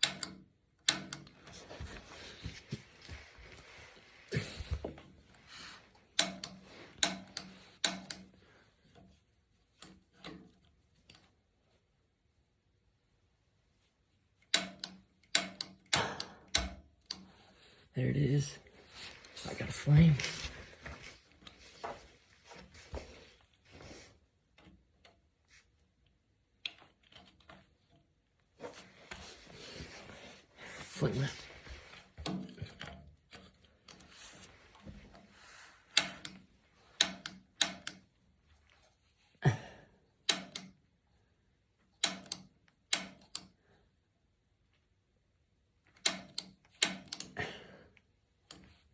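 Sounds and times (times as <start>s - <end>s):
piezo igniter clicking: 0.0s - 1.4s, 6.2s - 8.3s, 14.5s - 17.3s, 36.0s - 36.4s, 37.0s - 38.0s, 40.3s - 40.8s, 42.0s - 43.5s, 46.0s - 47.4s
handling clicks and rustles: 0.0s - 11.9s, 18.6s - 39.4s.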